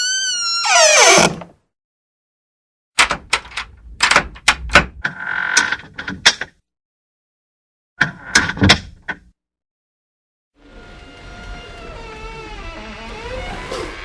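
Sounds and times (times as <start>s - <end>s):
door hinge squeak: 0.0s - 1.5s, 11.4s - 14.0s.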